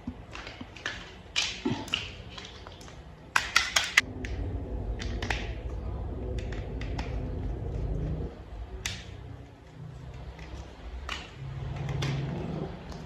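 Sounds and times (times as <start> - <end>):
plastic toy parts clicking: 0.1 - 4.0
steady low hum: 4.0 - 13.0.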